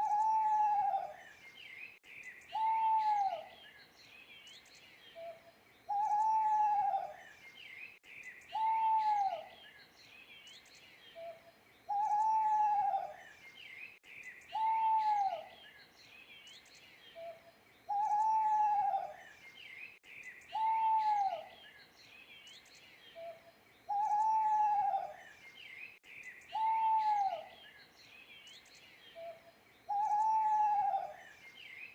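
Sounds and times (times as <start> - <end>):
owl hooting: 0.0 - 1.2, 2.5 - 3.5, 5.9 - 7.2, 8.5 - 9.5, 11.2 - 13.2, 14.5 - 15.5, 17.2 - 19.2, 20.5 - 21.5, 23.2 - 25.2, 26.5 - 27.5, 29.2 - 31.2
small birds chirping: 0.0 - 31.9.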